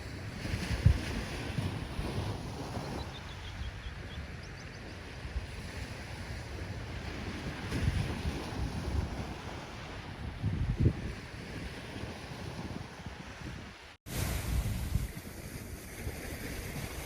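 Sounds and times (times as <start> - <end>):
ocean surf washing: 0.0 - 17.0
wind buffeting microphone: 0.0 - 17.0.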